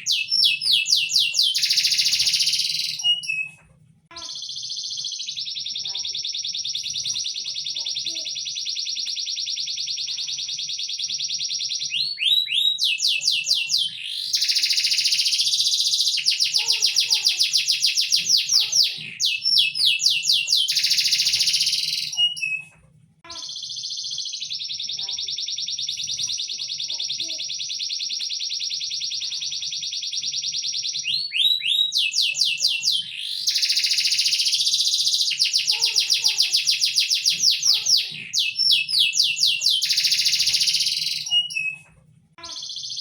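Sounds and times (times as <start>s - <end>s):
songbird trilling: 0.0s - 3.5s, 11.9s - 22.6s, 31.1s - 41.8s.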